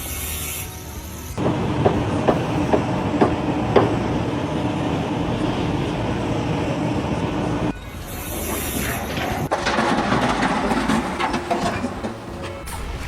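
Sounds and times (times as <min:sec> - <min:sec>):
mechanical rumble with low hum: 0:01.3 - 0:08.0.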